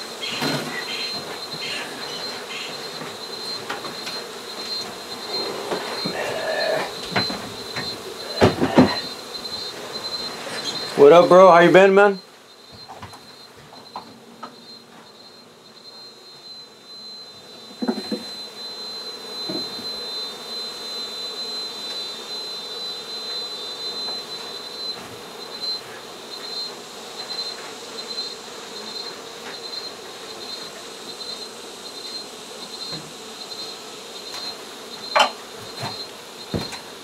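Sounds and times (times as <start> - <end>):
bees buzzing: 0.0 - 37.0
knock on hive: 5.8 - 10.1, 17.7 - 18.5, 19.4 - 20.0, 34.4 - 36.9.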